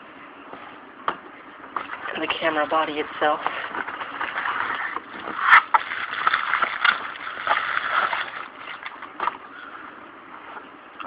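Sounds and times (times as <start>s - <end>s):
packaging rustling and crinkling: 3.4s - 9.4s.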